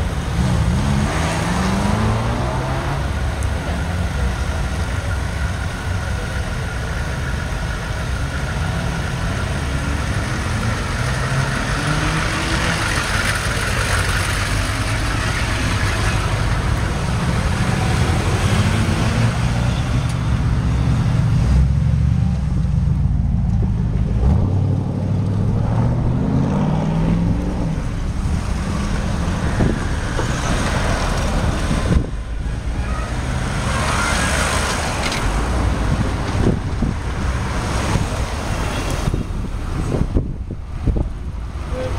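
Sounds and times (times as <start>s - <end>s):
road noise: 0.0s - 41.9s
car engines accelerating past: 0.3s - 3.5s, 9.7s - 19.6s, 21.4s - 40.2s.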